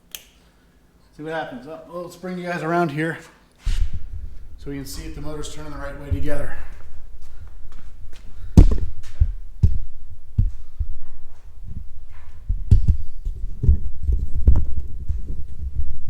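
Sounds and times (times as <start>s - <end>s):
footsteps walking: 3.2s - 16.0s
low rumble: 3.7s - 16.0s.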